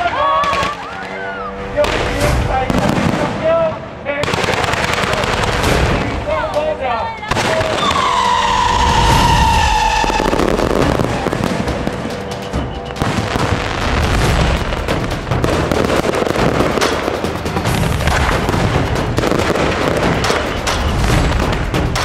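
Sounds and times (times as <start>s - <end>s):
firecrackers popping and banging: 0.0s - 22.0s
firework whistle: 0.2s - 1.6s, 7.5s - 14.4s, 20.1s - 21.5s.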